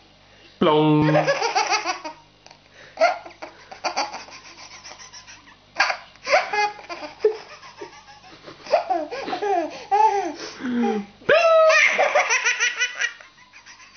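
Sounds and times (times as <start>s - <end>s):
baby laughing: 1.0s - 2.3s, 3.0s - 13.9s.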